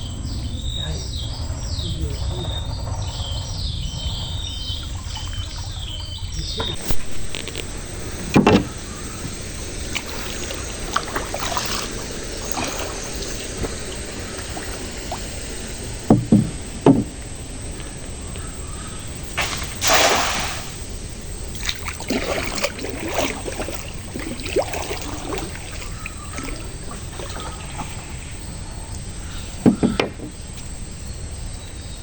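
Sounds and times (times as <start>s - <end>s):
bird chirping: 0.0s - 17.1s, 20.4s - 32.0s
knocks on a small boat: 8.2s - 8.8s, 16.1s - 17.2s, 29.6s - 30.4s.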